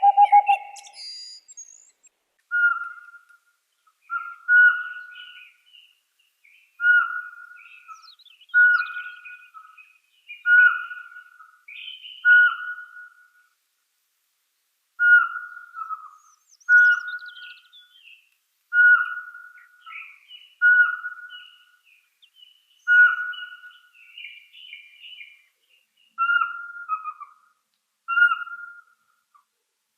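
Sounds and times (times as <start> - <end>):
bird whistled note: 0.0 - 1.4
birds chirping and twittering: 0.0 - 13.5, 15.0 - 29.5.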